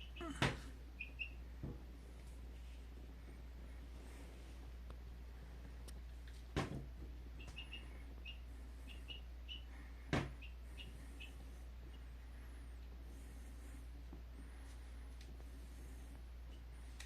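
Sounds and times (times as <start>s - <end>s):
chicks peeping: 0.0s - 1.5s, 7.4s - 12.1s.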